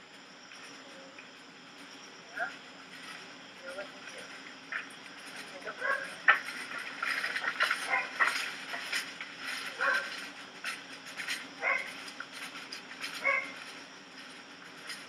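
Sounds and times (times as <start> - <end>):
dog barking: 5.8 - 6.1, 9.8 - 10.1, 11.6 - 11.9, 13.2 - 13.6.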